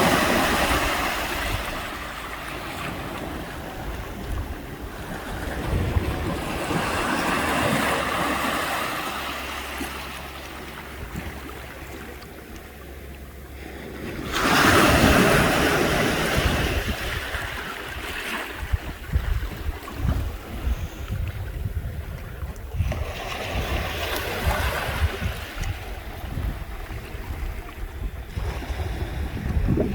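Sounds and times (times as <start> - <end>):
wind buffeting microphone: 0.0 - 8.8, 14.3 - 29.9
ocean waves breaking on beach: 0.0 - 12.4, 13.5 - 29.9.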